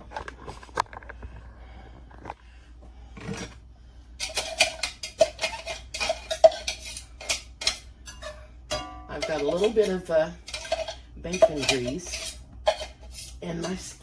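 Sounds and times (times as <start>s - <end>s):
utensil scraping dishes: 3.2s - 3.6s, 4.2s - 14.0s.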